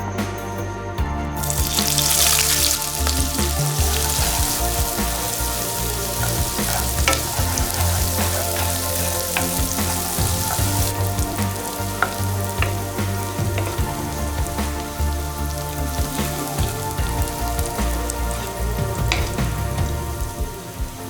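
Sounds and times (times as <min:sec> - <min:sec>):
food sizzling in a pan: 0:01.4 - 0:21.0
stirring clicks: 0:01.4 - 0:21.0.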